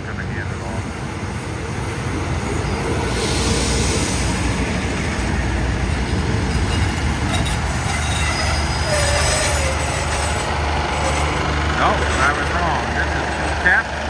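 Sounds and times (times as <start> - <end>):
train rolling past: 0.0 - 14.0
thin wheel squeals: 6.5 - 14.0.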